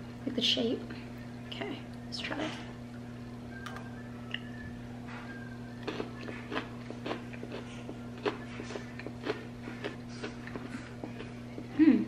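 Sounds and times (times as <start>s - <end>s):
low electrical hum: 0.0s - 12.0s
person chewing crunchy candy bar: 5.8s - 11.7s.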